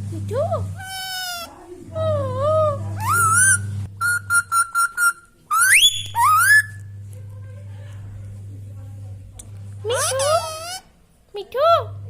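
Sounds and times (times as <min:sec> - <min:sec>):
parrot whistling: 0:00.8 - 0:01.5, 0:03.0 - 0:06.8.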